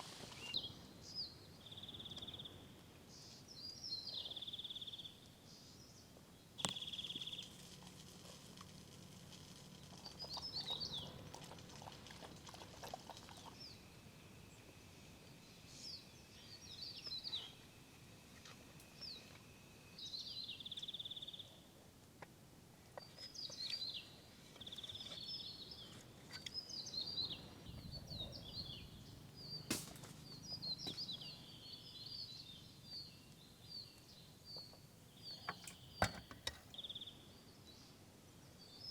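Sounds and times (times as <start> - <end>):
wild birds chirping and warbling: 9.6 - 19.4, 23.0 - 37.9.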